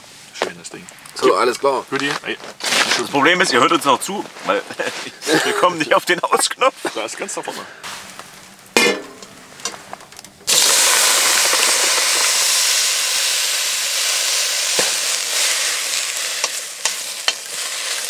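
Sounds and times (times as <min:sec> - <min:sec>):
food sizzling in a hot pot: 0:10.4 - 0:18.0
wooden spoon stirring in a pot: 0:14.8 - 0:18.0.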